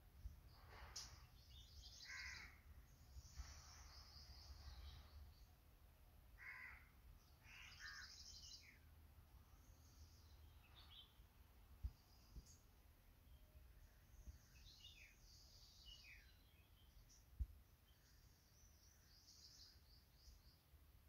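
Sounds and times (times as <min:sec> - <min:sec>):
short bird calls: 0:00.6 - 0:05.1, 0:06.4 - 0:08.8.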